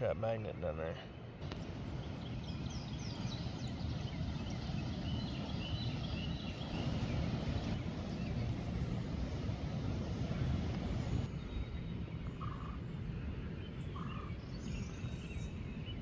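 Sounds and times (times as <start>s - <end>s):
river water flowing: 1.4s - 11.3s.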